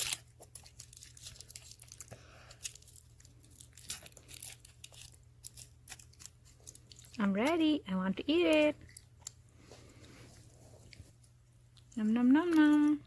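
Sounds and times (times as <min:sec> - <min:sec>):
packaging tearing and crinkling: 0:00.0 - 0:07.2.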